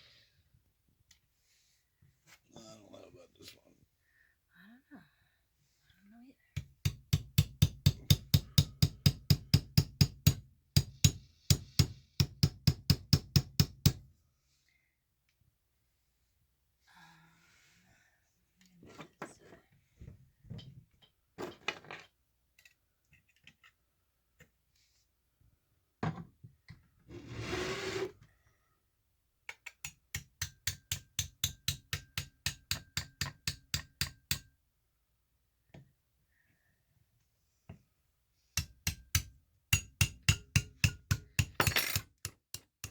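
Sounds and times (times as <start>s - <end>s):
scrape: 27.1s - 28.2s.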